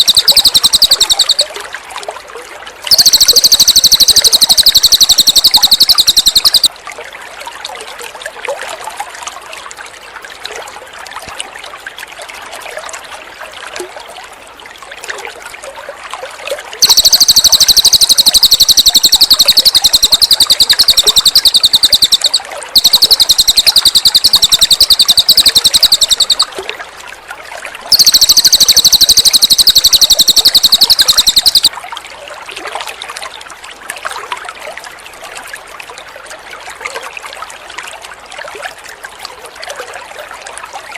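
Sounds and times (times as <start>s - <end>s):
bird singing fast high trill: 0.0s - 1.4s, 2.9s - 6.7s, 16.8s - 26.4s, 27.9s - 31.7s
water trickling: 0.0s - 40.9s.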